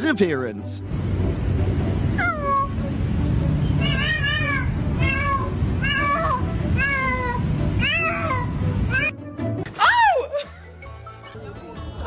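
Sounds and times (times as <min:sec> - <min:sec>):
cat meowing: 0:02.2 - 0:02.8, 0:03.8 - 0:09.1.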